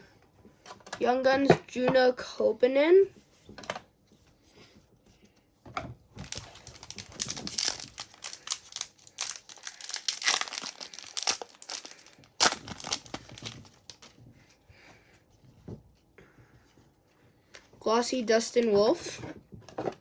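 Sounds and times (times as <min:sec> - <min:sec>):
card pack wrapper tearing and crinkling: 0:06.2 - 0:14.1.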